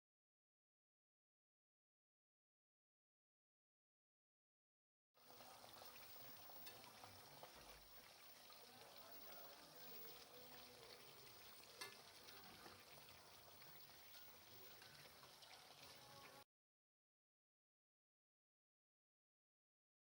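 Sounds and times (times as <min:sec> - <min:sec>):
food sizzling in hot oil: 0:05.2 - 0:16.4
oil popping: 0:09.2 - 0:15.9.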